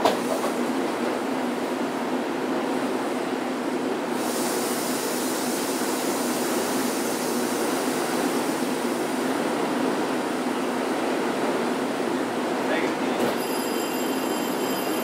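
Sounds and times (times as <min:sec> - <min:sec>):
train hum and rumble: 0:00.0 - 0:15.0
high hiss: 0:04.1 - 0:09.3.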